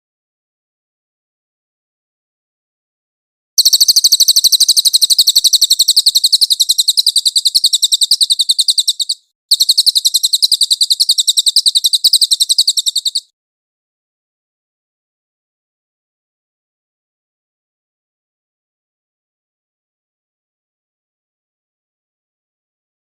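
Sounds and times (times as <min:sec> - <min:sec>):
songbird high-pitched trill: 0:03.6 - 0:13.3.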